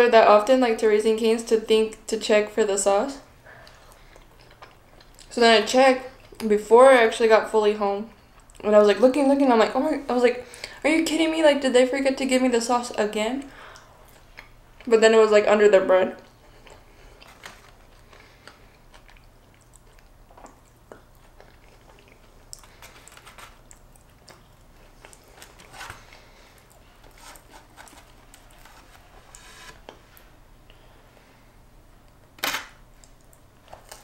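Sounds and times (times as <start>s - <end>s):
person chewing crunchy food: 3.7s - 5.3s, 16.2s - 29.0s.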